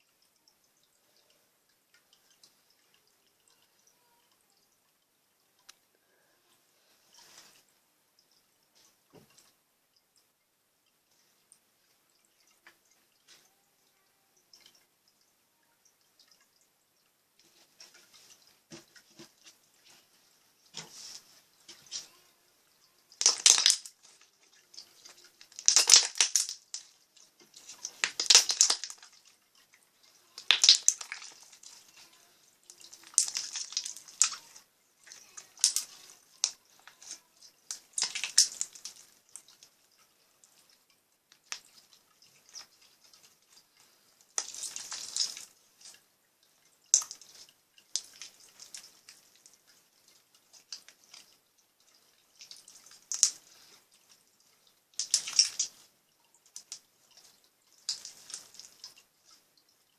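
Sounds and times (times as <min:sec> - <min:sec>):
slime bubbles popping: 0:23.2 - 0:24.0, 0:25.4 - 0:26.9, 0:27.9 - 0:29.1, 0:30.4 - 0:31.4, 0:37.7 - 0:38.9.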